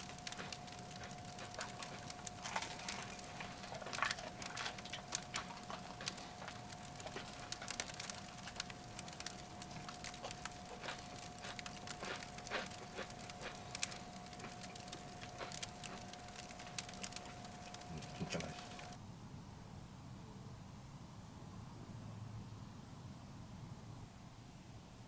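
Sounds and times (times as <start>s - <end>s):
firewood crackling in stove: 0.0s - 19.0s.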